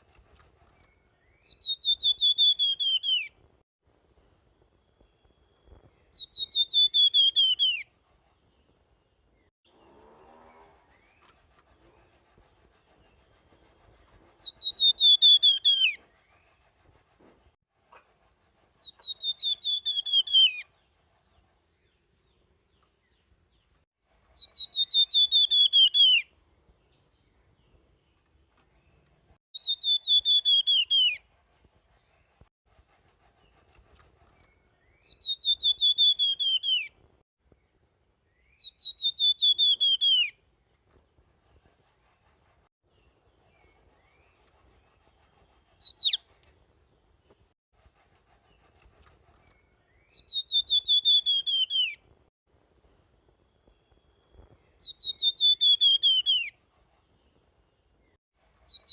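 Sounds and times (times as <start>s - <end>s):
songbird whistled phrases: 1.3s - 3.3s, 6.1s - 7.8s, 14.4s - 16.0s, 24.4s - 26.3s, 29.6s - 31.2s, 35.0s - 36.9s, 38.6s - 40.4s, 50.0s - 52.0s, 54.8s - 56.5s.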